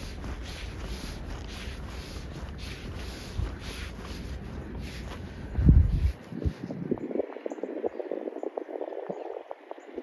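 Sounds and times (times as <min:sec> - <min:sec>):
footsteps in snow: 0:00.0 - 0:06.8
wind buffeting microphone: 0:00.0 - 0:10.0.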